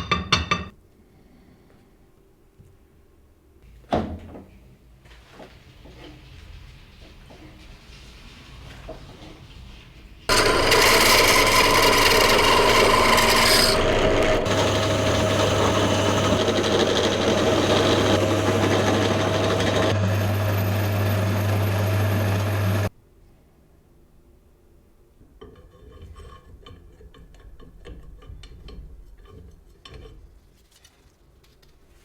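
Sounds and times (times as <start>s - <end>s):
low motor hum: 10.3s - 22.9s
power tool grinding metal: 10.3s - 22.9s.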